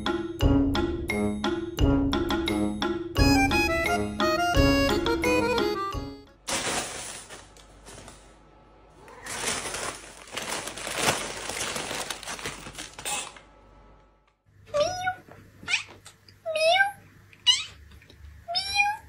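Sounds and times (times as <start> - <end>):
paper bag crinkling: 6.4 - 8.4, 9.1 - 13.5
cat meowing: 14.7 - 17.8, 18.5 - 19.0.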